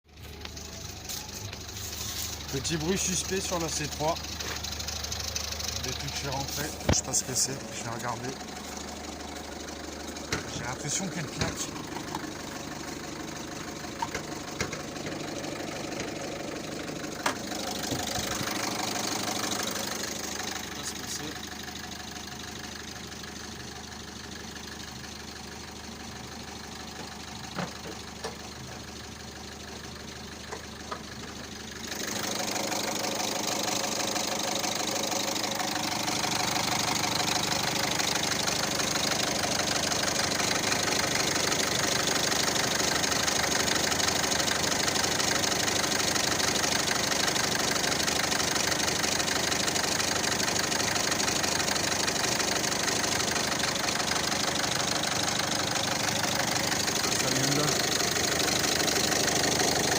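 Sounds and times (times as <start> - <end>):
car engine idling: 0.0 - 59.9
engine clacking: 0.1 - 59.9
sharp engine clicks: 0.3 - 13.0, 13.8 - 16.2, 30.4 - 59.9.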